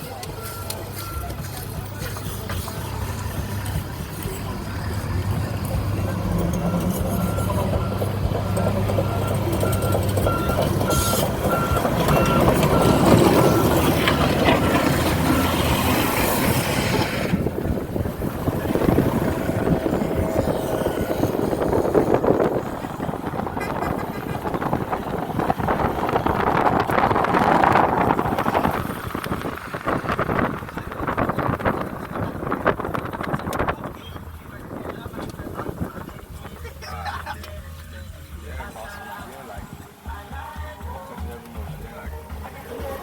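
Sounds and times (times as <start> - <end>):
diesel engine running: 0.0 - 43.0
traffic-like noise: 0.0 - 43.0
reversing alarm beeping: 5.6 - 14.7.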